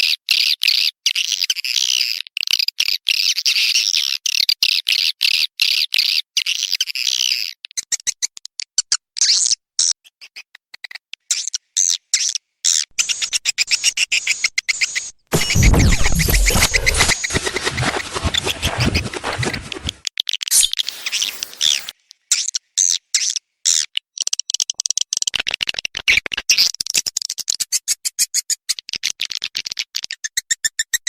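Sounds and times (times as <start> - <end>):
rough scratching noise: 15.3 - 20.0.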